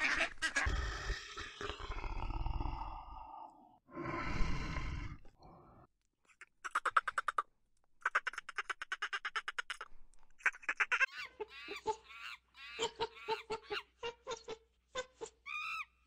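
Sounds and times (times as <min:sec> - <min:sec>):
monkeys calling: 0:00.0 - 0:01.2, 0:08.0 - 0:16.0.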